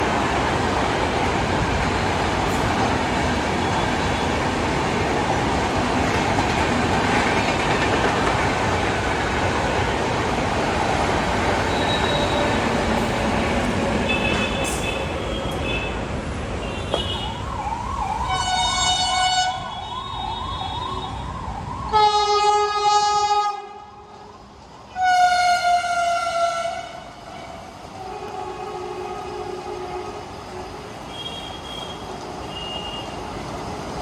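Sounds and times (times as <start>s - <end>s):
train rumble: 0.0s - 17.1s
train horn blasts: 21.9s - 23.9s, 24.9s - 30.3s.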